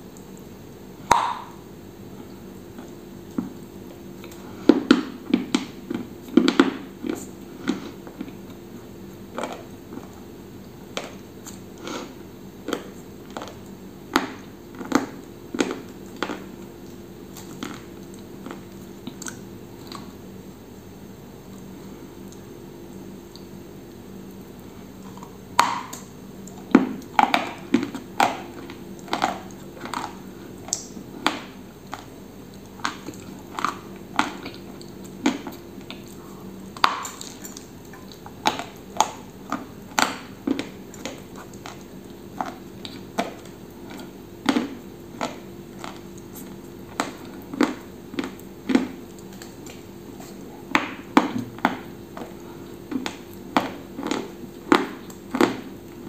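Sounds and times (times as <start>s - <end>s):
crunching and chewing biscuit: 1.1s - 23.6s, 24.2s - 56.0s.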